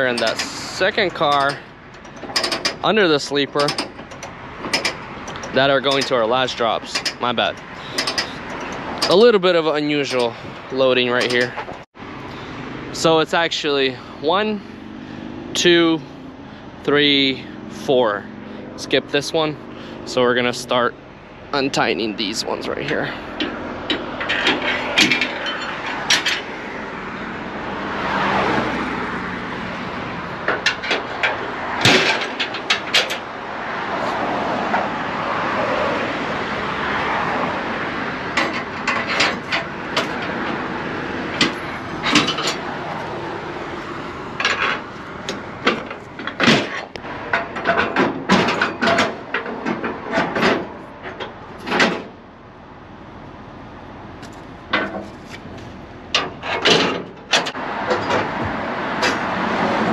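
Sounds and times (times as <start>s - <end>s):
metal winch clicks and clanks: 0.0s - 11.8s, 23.0s - 26.5s, 30.4s - 33.3s, 41.3s - 42.7s
passing traffic: 0.0s - 59.9s.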